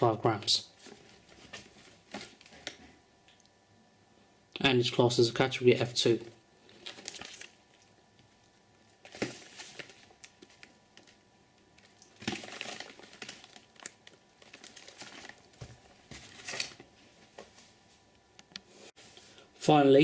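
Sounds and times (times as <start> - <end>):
packaging rustling and crinkling: 0.8 - 3.0, 6.7 - 7.8, 8.8 - 17.8.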